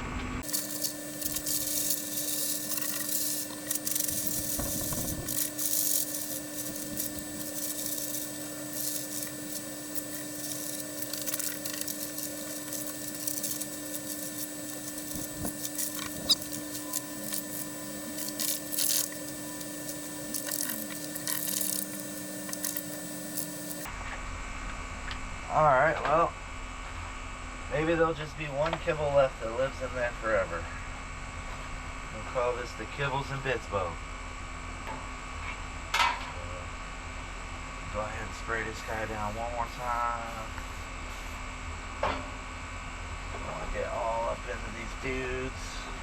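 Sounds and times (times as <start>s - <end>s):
steady electrical hum: 0.0s - 34.8s.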